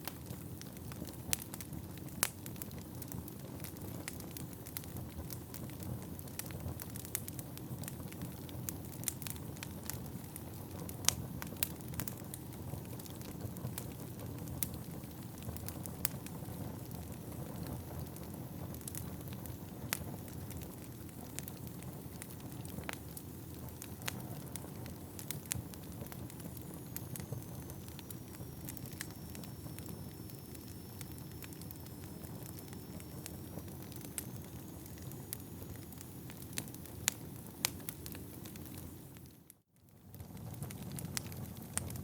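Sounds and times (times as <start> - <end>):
fire rumbling: 0.0 - 42.0
logs crackling and popping: 0.0 - 42.0
faint high whistle: 26.5 - 36.2.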